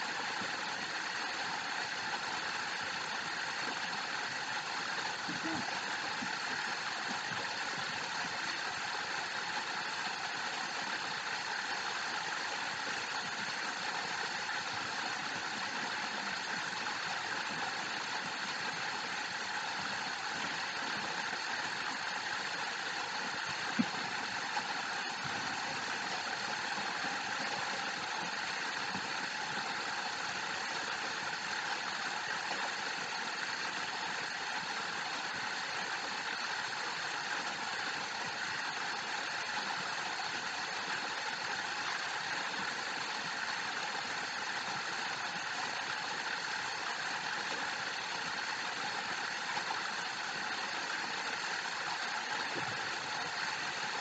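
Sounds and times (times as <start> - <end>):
waterfall rushing: 4.1 - 10.1.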